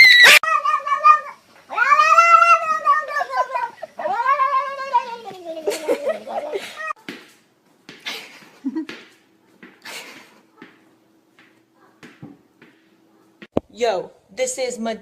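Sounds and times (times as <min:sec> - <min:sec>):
cat yowling: 0:00.0 - 0:07.0.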